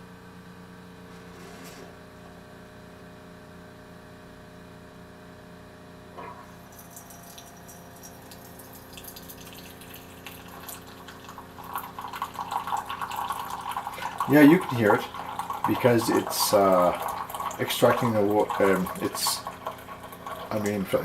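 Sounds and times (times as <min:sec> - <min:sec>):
water pump humming: 0:06.0 - 0:21.0
liquid trickling and crackling: 0:06.3 - 0:21.0.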